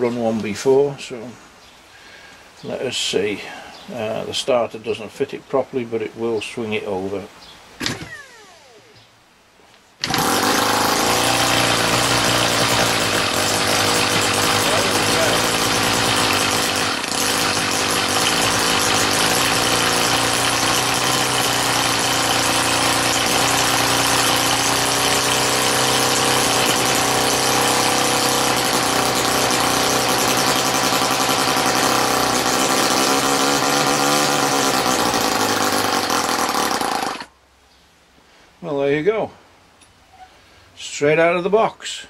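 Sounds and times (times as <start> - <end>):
model glow engine running: 10.0 - 37.3.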